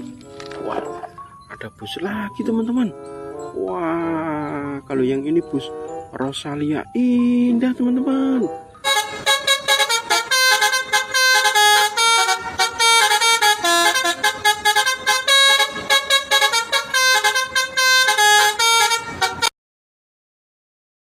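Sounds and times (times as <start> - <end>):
musical air horn playing a tune: 2.6 - 3.7, 8.2 - 19.5.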